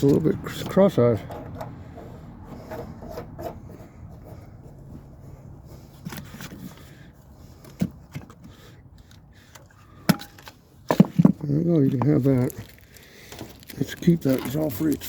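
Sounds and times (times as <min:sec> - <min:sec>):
light scraping: 0:00.0 - 0:07.7.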